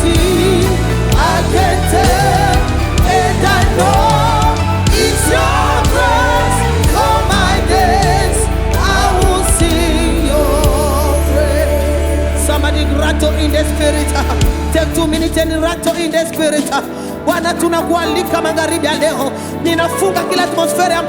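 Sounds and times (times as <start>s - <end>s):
low keyboard or bass notes: 0.0s - 15.9s
voices singing: 0.0s - 16.9s.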